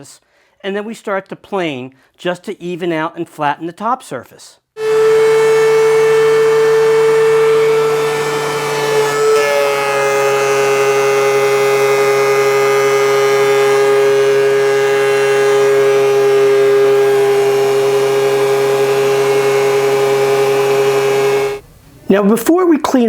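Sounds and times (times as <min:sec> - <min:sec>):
thickness planer whining: 0:04.8 - 0:21.8.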